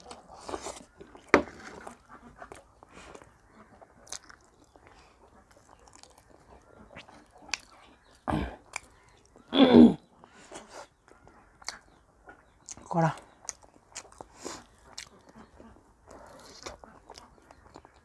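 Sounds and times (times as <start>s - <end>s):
person chewing: 0.0s - 9.5s, 10.6s - 18.0s.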